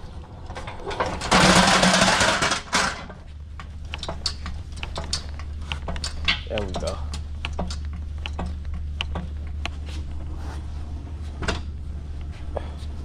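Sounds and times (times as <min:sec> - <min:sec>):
pallet jack rattling rush: 0:00.5 - 0:03.1
pallet jack clicks and knocks: 0:00.5 - 0:03.2, 0:03.9 - 0:09.4.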